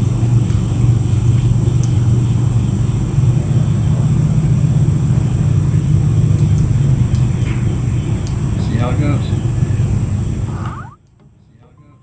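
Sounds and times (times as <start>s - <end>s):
faint high steady tone: 10.5s - 11.0s.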